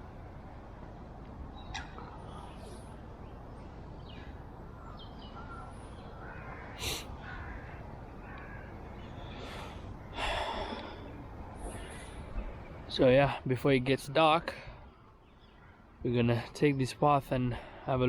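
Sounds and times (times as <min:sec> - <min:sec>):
harsh caw-like bird calls: 0:01.6 - 0:02.7, 0:04.0 - 0:12.1, 0:14.6 - 0:16.0
bird chirps: 0:01.6 - 0:02.8.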